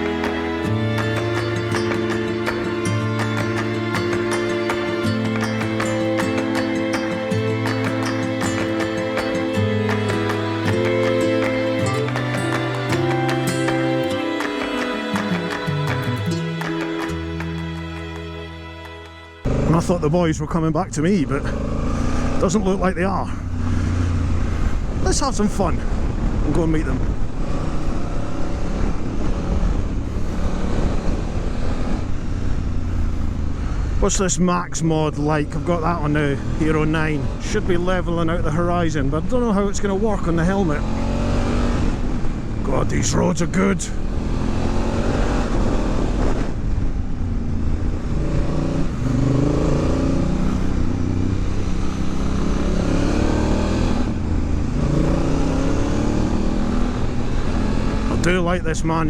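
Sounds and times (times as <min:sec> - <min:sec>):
motorcycle engine running: 0:19.4 - 0:20.2, 0:44.0 - 0:58.4
motorcycle engine revving: 0:19.4 - 0:34.0, 0:39.8 - 0:58.6
wind rushing over microphone: 0:23.5 - 0:34.0.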